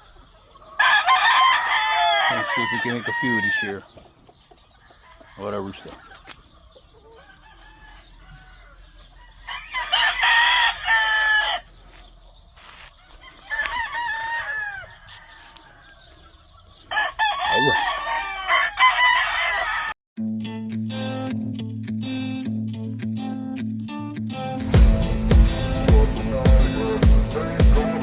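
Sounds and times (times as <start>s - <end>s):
rooster crowing: 0.8s - 3.8s, 7.1s - 11.7s, 13.1s - 16.0s, 16.9s - 20.0s
guitar music: 20.2s - 28.0s.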